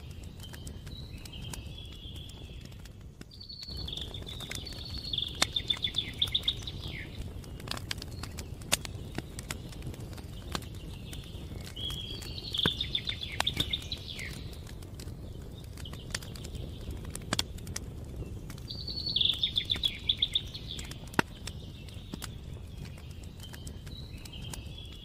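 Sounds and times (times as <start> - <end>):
campfire crackling: 0.0 - 25.0
songbird trilling: 3.4 - 7.2, 11.6 - 14.5, 18.7 - 22.0.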